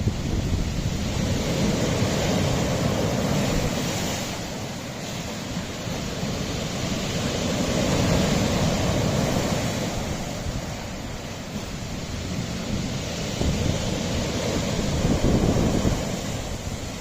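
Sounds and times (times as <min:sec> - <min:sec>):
sea waves on rocky shore: 0:00.0 - 0:17.0
wind on microphone: 0:00.0 - 0:17.0.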